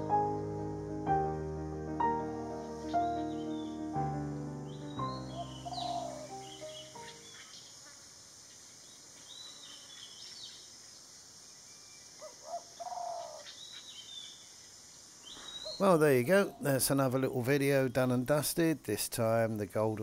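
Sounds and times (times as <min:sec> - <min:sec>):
birds chirping: 0:02.0 - 0:07.8, 0:11.7 - 0:14.6, 0:15.2 - 0:18.5.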